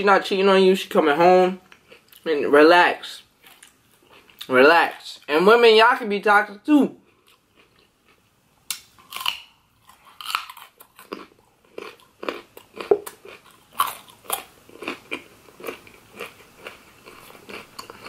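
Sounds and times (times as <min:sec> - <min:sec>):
carrot crunching: 0:03.4 - 0:05.0, 0:07.1 - 0:18.0.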